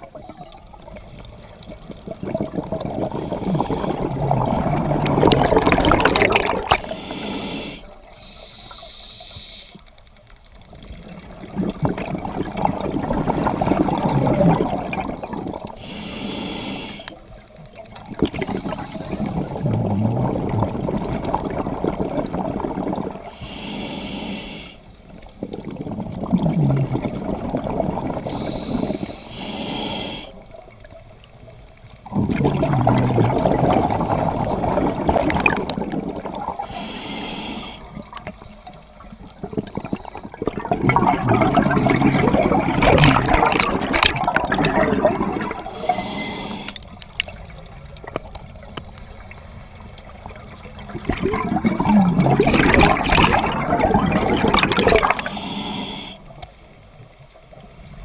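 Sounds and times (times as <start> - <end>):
bubbling exhale underwater: 0.0 - 7.2, 11.0 - 16.0, 17.9 - 23.5, 25.4 - 30.4, 32.0 - 48.3, 50.1 - 56.2
regulator hissing inhale: 3.1 - 4.2, 6.8 - 10.0, 15.8 - 17.3, 18.3 - 20.0, 23.3 - 25.0, 28.2 - 30.5, 36.6 - 38.1, 45.6 - 47.0, 55.1 - 56.4.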